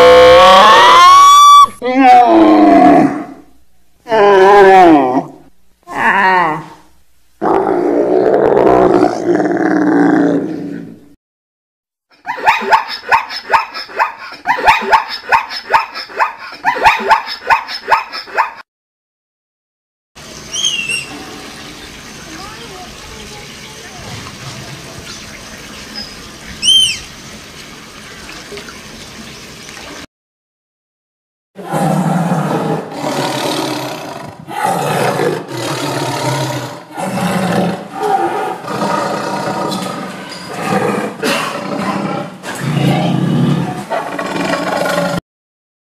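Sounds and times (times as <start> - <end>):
big cat roaring: 2.2 - 3.4, 7.4 - 11.1, 31.6 - 45.2
dog barking rapidly: 12.3 - 18.6.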